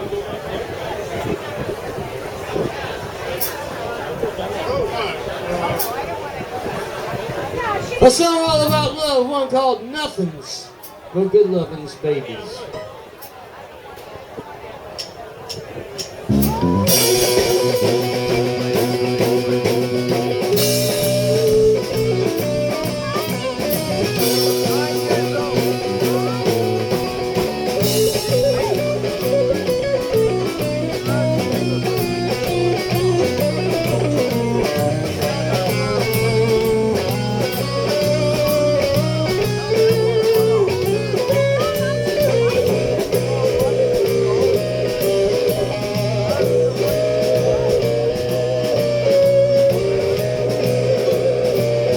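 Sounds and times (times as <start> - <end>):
drum beat: 16.0 - 51.9
electric guitar line: 16.3 - 51.9
steady bass: 16.3 - 51.9.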